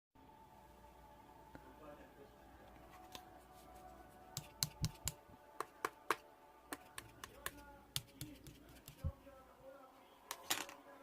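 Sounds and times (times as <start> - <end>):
sharp clicks and taps: 4.4 - 9.1.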